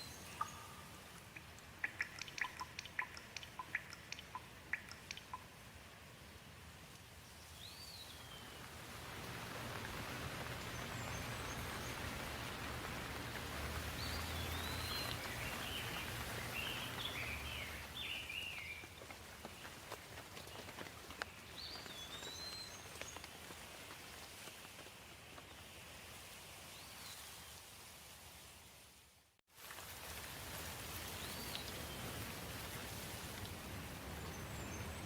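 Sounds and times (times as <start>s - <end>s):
songbirds chirping: 0.0s - 5.6s, 6.9s - 24.2s, 33.9s - 35.0s
rain falling: 0.0s - 28.4s, 29.5s - 35.0s
raindrops tapping: 0.3s - 5.6s, 8.5s - 25.6s.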